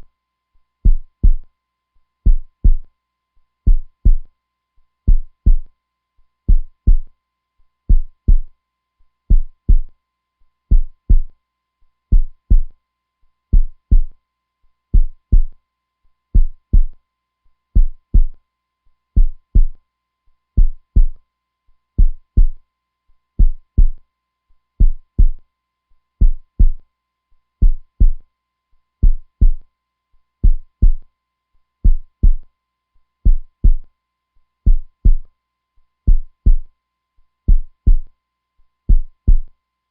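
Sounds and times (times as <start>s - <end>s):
heartbeat double thump: 2.3s - 2.8s, 3.7s - 4.2s, 7.9s - 8.5s, 9.3s - 9.9s, 10.7s - 11.3s, 12.1s - 12.7s, 15.0s - 15.5s, 16.4s - 16.9s, 17.8s - 18.3s, 20.6s - 21.2s, 22.0s - 22.6s, 23.4s - 24.0s, 24.8s - 25.4s, 26.2s - 26.8s, 27.6s - 28.2s, 29.0s - 29.6s, 30.4s - 31.0s, 31.9s - 32.4s, 33.3s - 33.8s, 34.7s - 35.2s, 36.1s - 36.6s, 37.5s - 38.0s, 38.9s - 39.5s.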